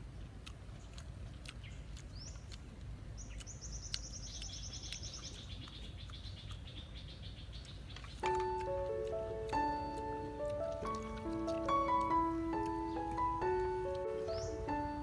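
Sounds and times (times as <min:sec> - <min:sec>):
small bird singing trills: 0:03.2 - 0:15.0.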